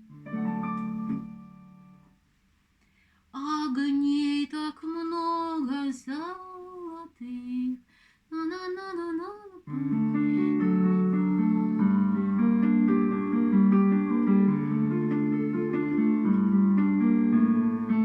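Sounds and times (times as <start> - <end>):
instrumental accompaniment: 0.0 - 2.2, 9.8 - 18.0
woman singing folk song: 3.4 - 12.0.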